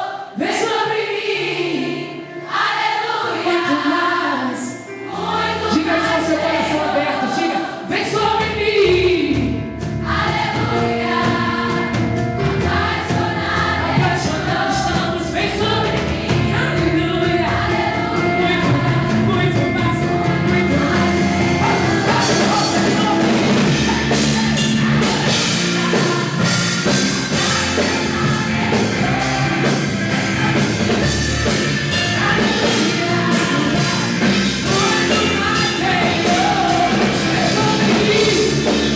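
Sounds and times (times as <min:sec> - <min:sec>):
band accompaniment: 0:00.0 - 0:38.9
voices singing together: 0:00.0 - 0:38.9
drums and cymbals: 0:08.4 - 0:38.9.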